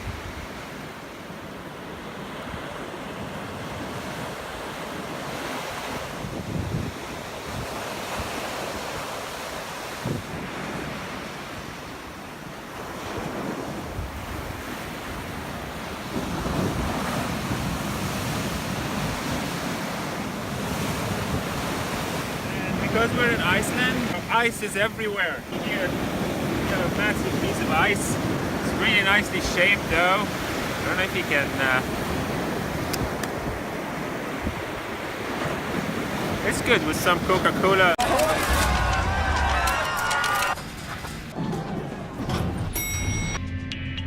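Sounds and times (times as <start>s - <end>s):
surf breaking on beach: 0.0s - 42.2s
wind buffeting microphone: 5.8s - 9.2s, 12.8s - 24.3s, 25.4s - 39.8s.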